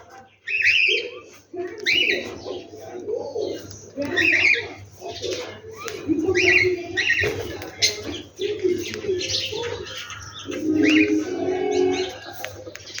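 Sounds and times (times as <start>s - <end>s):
low cooing bird calls: 0.0s - 13.0s
high bird chirps: 3.6s - 13.0s.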